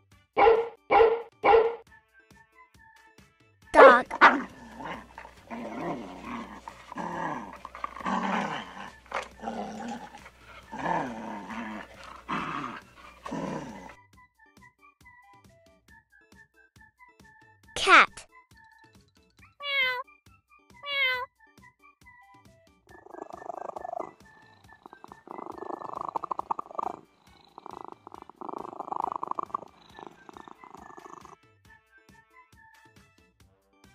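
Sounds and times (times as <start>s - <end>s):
cat purring: 3.8s - 14.0s, 22.9s - 31.4s
dog growling: 3.8s - 14.0s, 22.9s - 31.4s.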